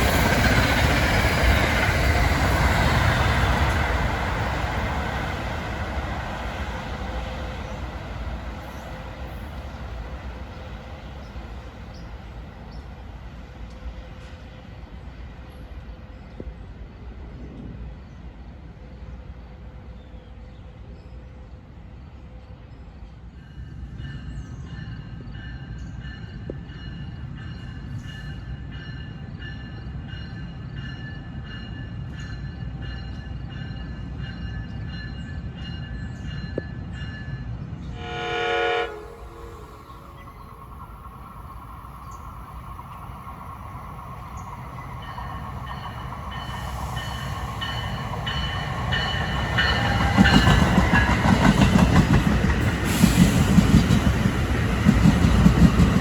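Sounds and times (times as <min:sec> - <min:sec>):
train rumbling by: 0:00.0 - 0:56.0
train horn blast: 0:37.9 - 0:40.6
train wheel clatter: 0:39.6 - 0:56.0.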